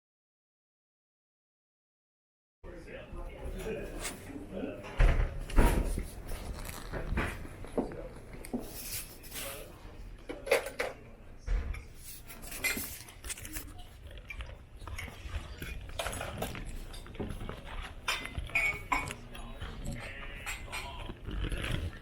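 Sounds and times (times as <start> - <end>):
faint background voices: 2.6 - 22.0
tableware clinking: 8.5 - 11.0, 11.6 - 21.2.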